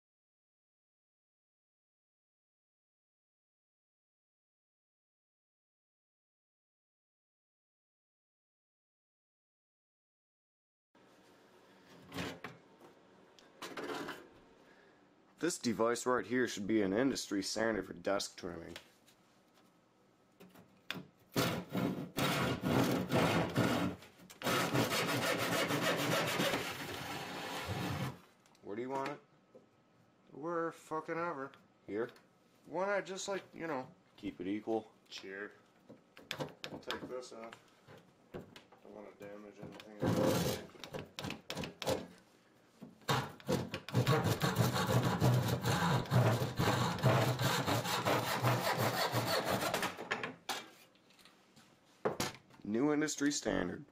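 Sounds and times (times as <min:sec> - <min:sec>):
saw cutting wood: 0:21.4 - 0:28.2, 0:40.0 - 0:42.1, 0:43.1 - 0:50.0.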